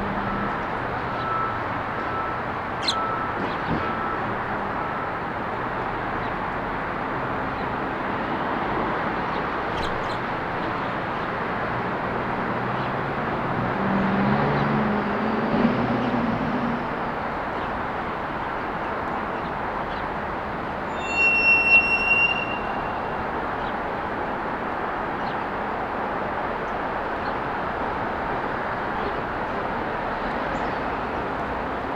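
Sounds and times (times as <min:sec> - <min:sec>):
heavy vehicle engine hum: 0:00.0 - 0:20.9
road traffic: 0:00.0 - 0:31.9
high steady squeal: 0:20.8 - 0:23.7.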